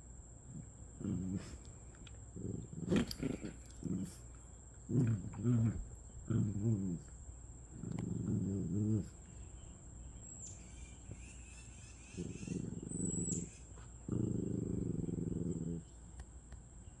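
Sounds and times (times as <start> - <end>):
small dogs growling: 0.5 - 9.4, 12.0 - 16.0.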